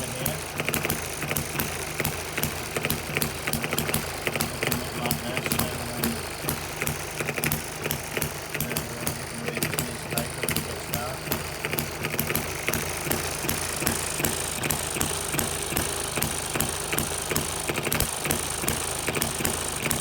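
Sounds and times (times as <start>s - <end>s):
small engine clicking: 0.0s - 20.0s.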